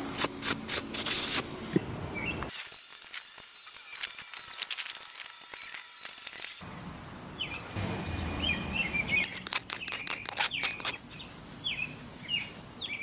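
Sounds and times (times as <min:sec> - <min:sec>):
songbirds chirping: 0:01.8 - 0:02.5, 0:06.6 - 0:13.0.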